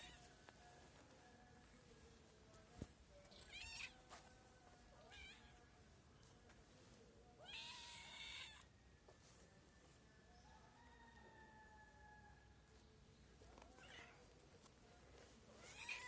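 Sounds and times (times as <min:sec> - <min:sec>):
cats meowing faintly: 0:15.6 - 0:16.0.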